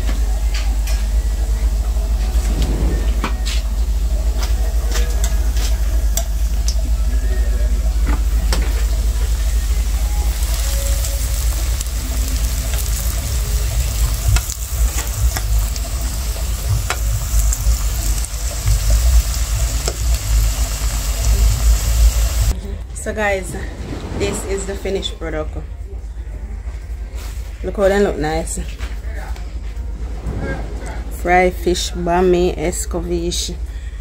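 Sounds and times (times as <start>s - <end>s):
low rumble: 1.2s - 5.0s, 5.8s - 27.8s, 28.6s - 34.0s
flatbread sizzling in oil: 9.7s - 22.5s.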